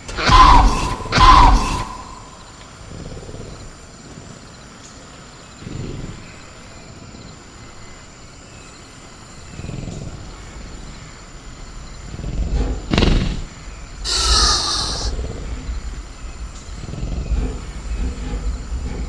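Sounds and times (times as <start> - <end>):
crickets chirring: 0.0 - 19.0
creature low growls: 14.0 - 15.4.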